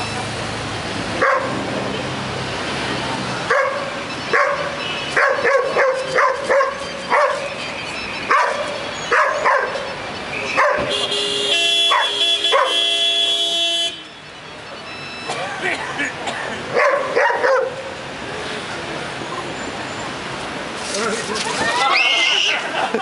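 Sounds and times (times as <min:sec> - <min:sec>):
dog barking: 0:01.2 - 0:01.6, 0:03.5 - 0:07.5, 0:08.3 - 0:09.8, 0:10.6 - 0:11.0, 0:11.8 - 0:12.8, 0:16.7 - 0:17.8.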